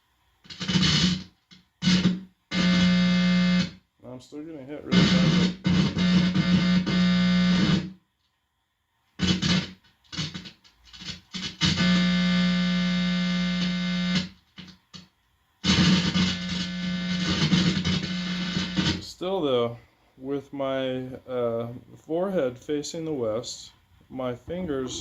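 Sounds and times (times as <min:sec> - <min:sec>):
guitar amplifier buzzing hum: 0:00.0 - 0:19.7.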